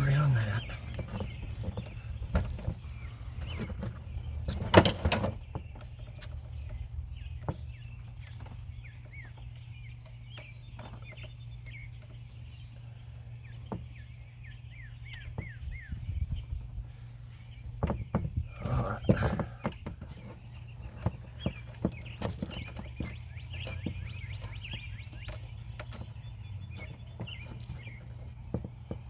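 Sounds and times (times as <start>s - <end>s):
bird chirping: 0.0s - 29.0s
knocks and clatter of hand tools: 19.0s - 29.0s.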